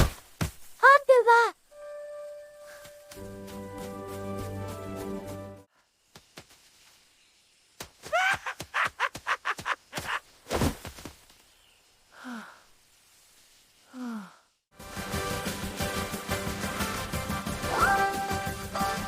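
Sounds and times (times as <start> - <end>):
music: 1.7 - 5.7, 14.8 - 19.0
falling sighs: 12.1 - 12.8, 13.8 - 14.6
breathy vocal sounds: 13.9 - 14.6.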